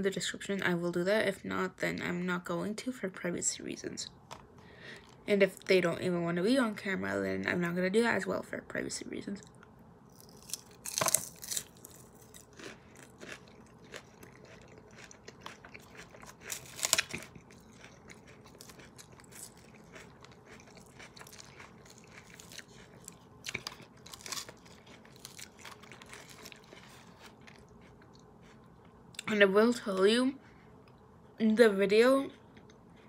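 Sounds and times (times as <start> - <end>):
chewing crisp lettuce: 10.1 - 28.7.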